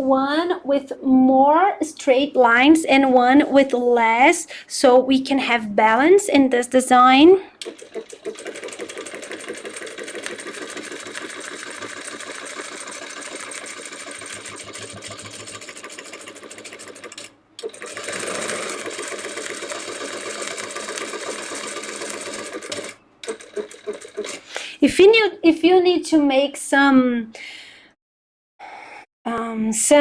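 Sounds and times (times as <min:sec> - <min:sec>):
sewing machine stitching: 0:07.6 - 0:24.6.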